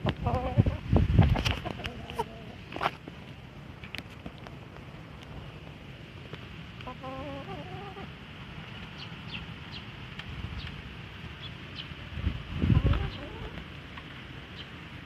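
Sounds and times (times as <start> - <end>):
wind rumble on microphone: 0.0 - 6.4, 8.7 - 15.0
chicken call: 6.9 - 8.1.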